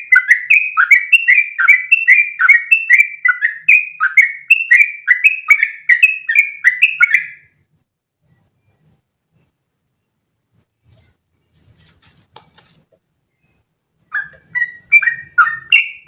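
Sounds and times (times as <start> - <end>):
bird singing rapid sweeping notes: 13.3 - 16.0.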